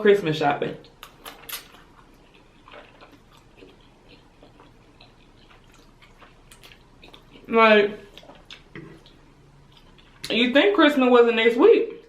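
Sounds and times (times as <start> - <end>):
person chewing with mouth smacks: 0.8 - 10.3.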